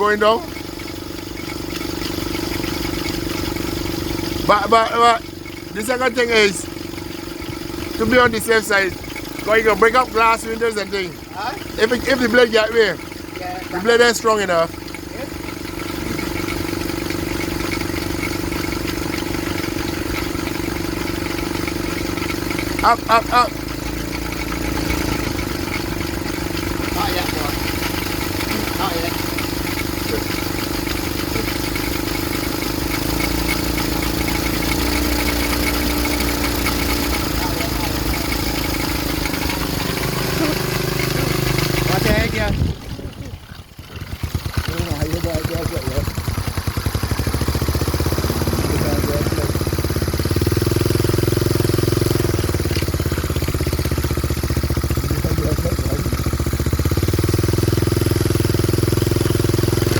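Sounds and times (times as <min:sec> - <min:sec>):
helicopter engine revving: 0:00.0 - 0:59.9.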